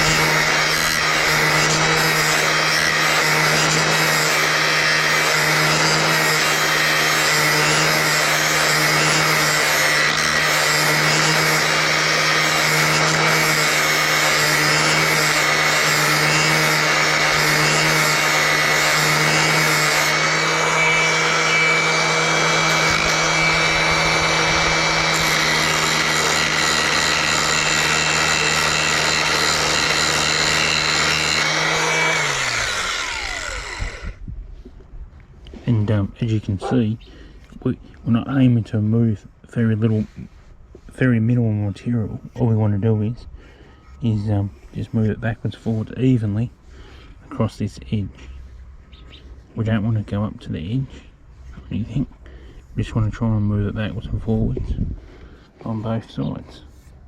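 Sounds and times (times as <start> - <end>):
angle grinder grinding steel: 0.0 - 34.2.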